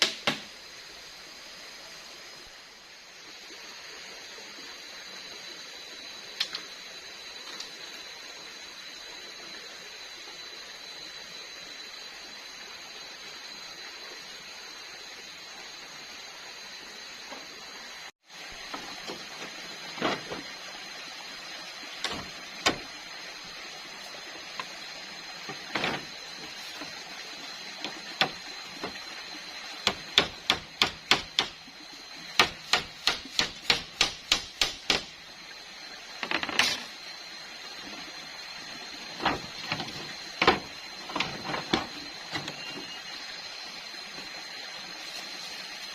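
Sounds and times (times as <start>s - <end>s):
steady hiss: 0.0s - 45.9s
sharp wooden knocks: 22.0s - 22.9s, 27.8s - 29.0s, 29.8s - 31.6s, 32.3s - 35.2s, 39.2s - 41.9s.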